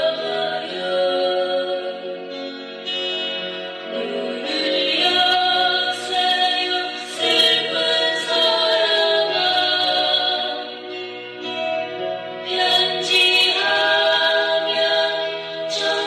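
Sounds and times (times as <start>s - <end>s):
woman singing sad song: 0.0s - 2.1s, 4.0s - 10.8s, 12.5s - 16.0s.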